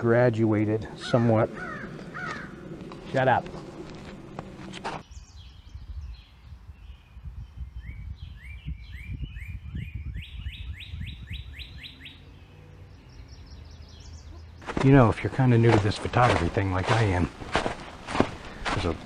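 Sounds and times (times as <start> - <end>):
songbird chirping: 5.0 - 19.0.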